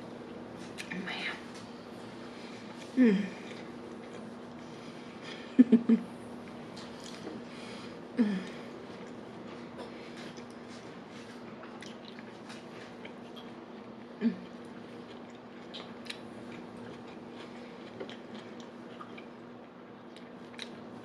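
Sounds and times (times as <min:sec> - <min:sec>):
steady low hum: 0:00.0 - 0:21.0
person chewing: 0:02.6 - 0:05.2, 0:06.4 - 0:07.5, 0:08.4 - 0:19.4, 0:20.1 - 0:20.8.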